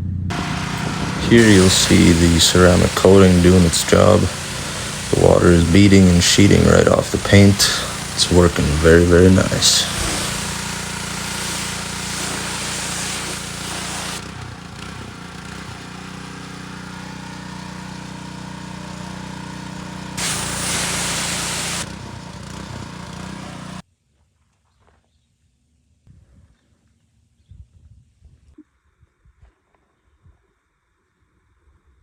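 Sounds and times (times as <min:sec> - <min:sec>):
steady machine hum: 0:00.2 - 0:14.2
water spraying onto car paint: 0:00.3 - 0:23.8.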